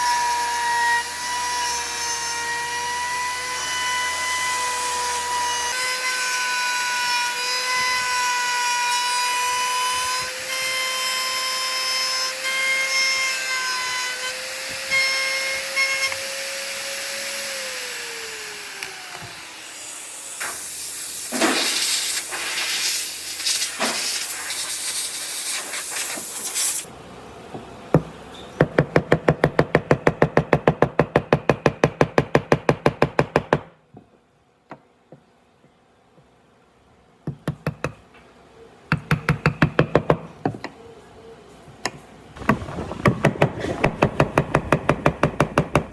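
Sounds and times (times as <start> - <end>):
rough noisy tool work: 0.0 - 26.9
rapid sharp knocks: 43.0 - 45.9.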